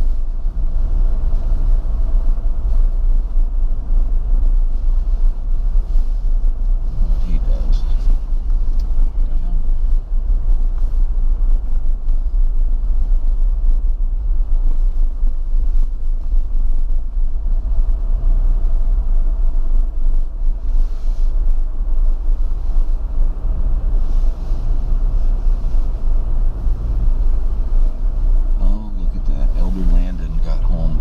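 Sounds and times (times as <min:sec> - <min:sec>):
car driving low rumble: 0:00.0 - 0:31.0.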